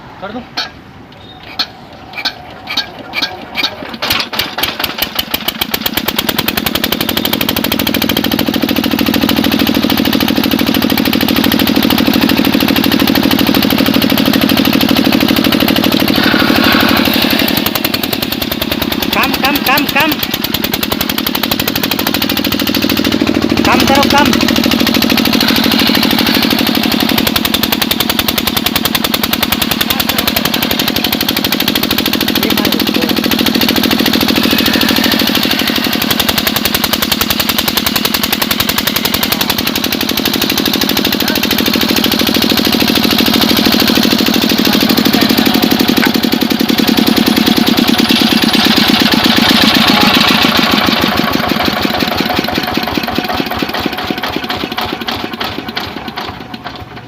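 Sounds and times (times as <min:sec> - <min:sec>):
diesel engine knocking: 0:00.6 - 0:57.0.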